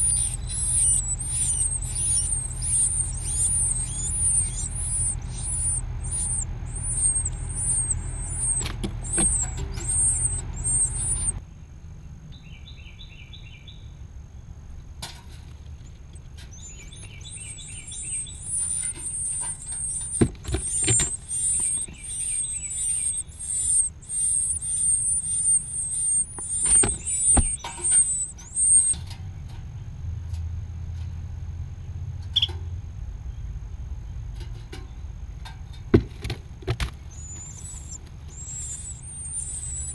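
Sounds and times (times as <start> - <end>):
nestling birds begging calls: 0.0 - 11.4, 16.5 - 29.0, 37.1 - 39.9
soft bird chirps: 0.0 - 11.6, 15.8 - 29.0, 37.1 - 39.9.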